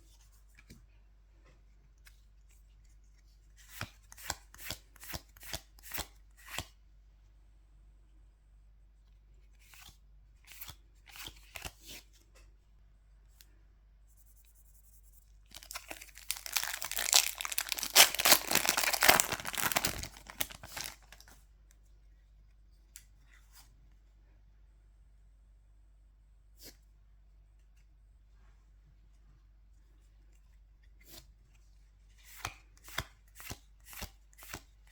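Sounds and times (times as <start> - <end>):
foil pack tearing and rustling: 15.5 - 21.3
crisp flicks: 15.5 - 21.4.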